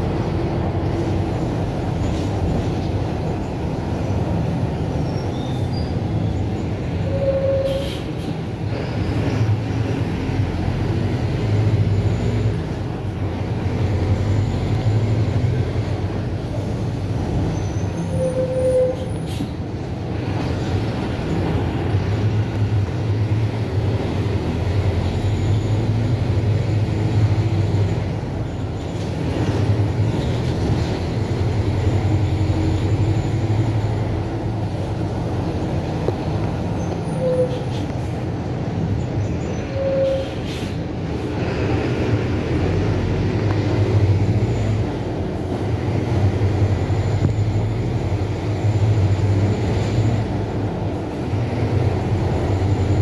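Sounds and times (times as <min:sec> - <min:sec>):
bus diesel engine running: 0:00.0 - 0:53.0.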